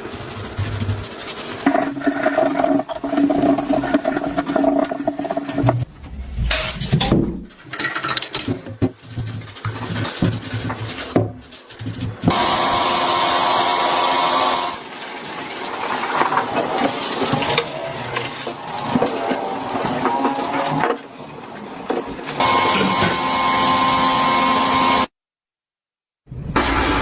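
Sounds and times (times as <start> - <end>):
rough working noise: 0.0 - 25.1
knocks and clicks: 4.7 - 9.0.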